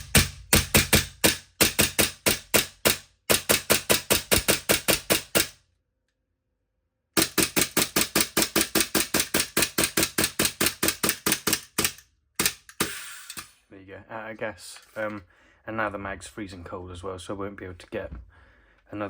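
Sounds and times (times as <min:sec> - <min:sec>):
airsoft pistol firing rapidly: 0:00.0 - 0:05.6, 0:07.2 - 0:13.4.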